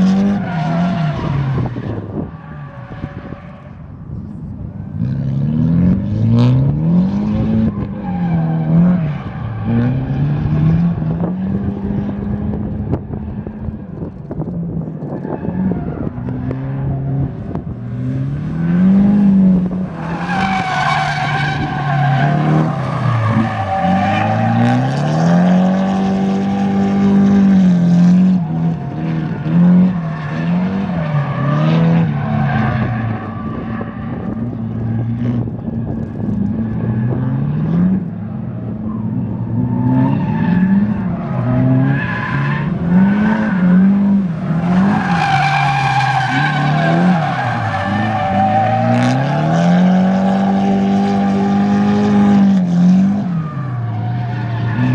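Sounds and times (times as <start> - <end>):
car engine revving: 0.0 - 54.9
tyres squealing: 38.9 - 49.3.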